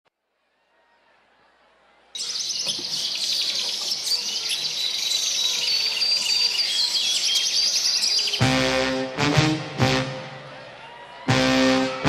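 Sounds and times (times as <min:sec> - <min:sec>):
birds chirping and singing: 0:02.2 - 0:08.7.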